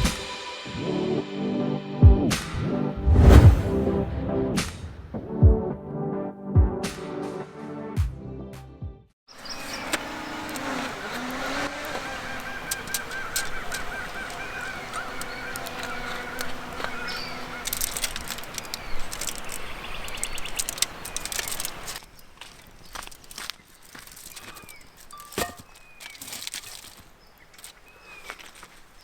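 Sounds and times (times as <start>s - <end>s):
birds calling: 9.3s - 29.0s
outdoor background noise: 9.3s - 29.0s
sharp clicks: 17.6s - 22.0s.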